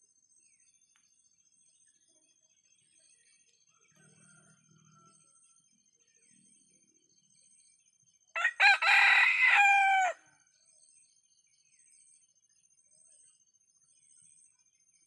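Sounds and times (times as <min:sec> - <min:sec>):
rooster crowing: 0:08.4 - 0:10.2.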